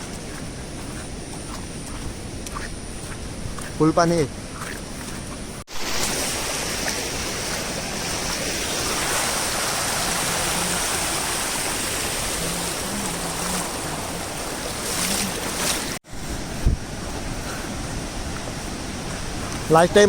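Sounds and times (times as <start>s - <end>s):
stream and waterfall rushing: 5.7s - 20.0s.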